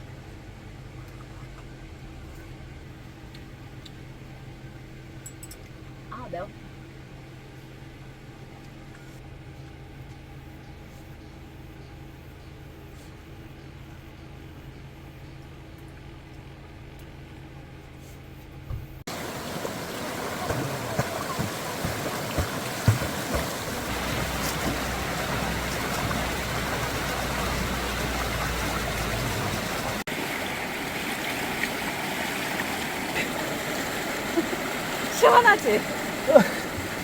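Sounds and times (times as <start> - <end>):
low engine hum: 0.0 - 37.0
knocks and splashes: 18.7 - 37.0
stream rushing over rocks: 19.1 - 37.0.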